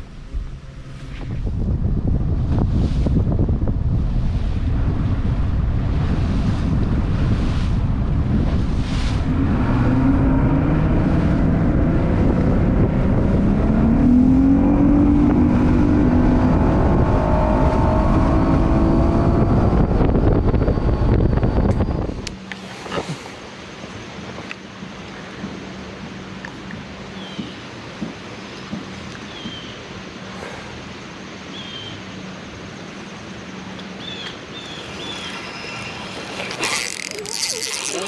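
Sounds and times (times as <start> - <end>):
wind buffeting microphone: 0.0 - 23.4
outboard motor running: 32.9 - 38.0.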